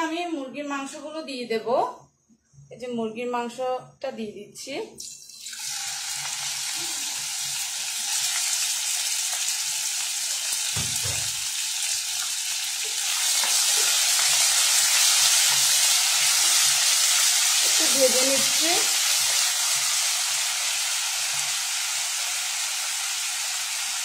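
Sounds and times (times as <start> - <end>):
chicken sizzling in a wok: 5.3 - 24.0.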